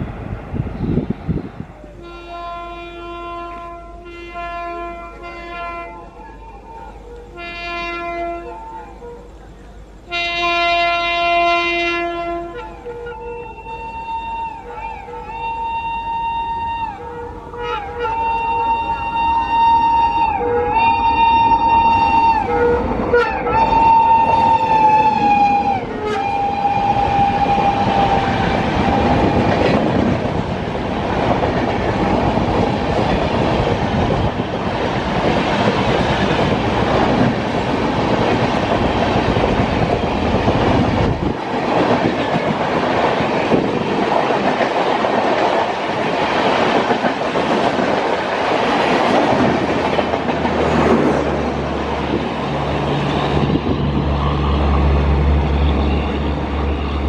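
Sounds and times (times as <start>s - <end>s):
locomotive multi-tone horn: 1.8s - 30.0s, 48.8s - 57.0s
train coaches clattering over rails: 22.8s - 57.0s.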